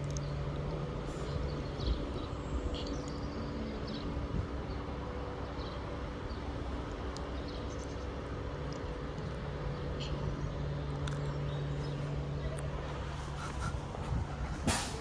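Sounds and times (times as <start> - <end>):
electric train pulling away: 14.4 - 15.0.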